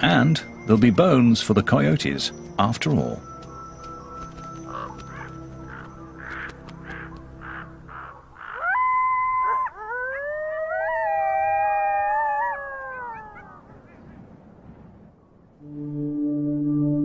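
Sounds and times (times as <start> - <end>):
wild canids howling: 3.5 - 14.3.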